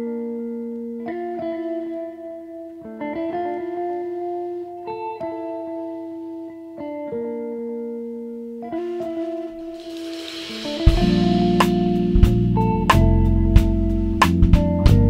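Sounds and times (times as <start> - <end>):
guitar playing ringing notes: 8.7 - 13.9.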